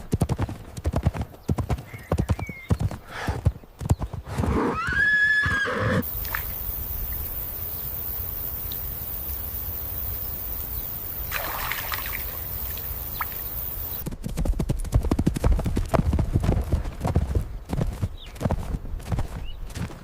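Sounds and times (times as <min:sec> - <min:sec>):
horse hooves on hard ground: 0:00.0 - 0:05.0, 0:06.0 - 0:20.0
outdoor background hiss: 0:05.1 - 0:14.1.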